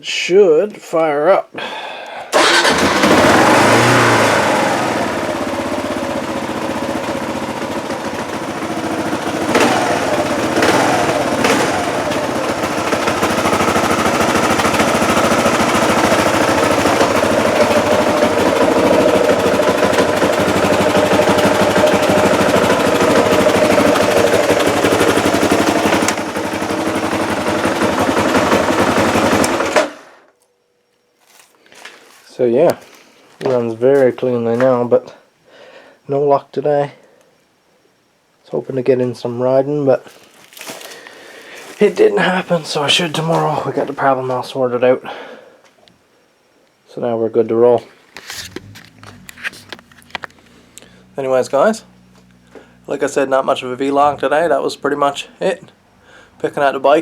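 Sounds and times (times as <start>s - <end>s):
motorcycle engine revving: 2.3s - 30.2s, 48.3s - 57.0s.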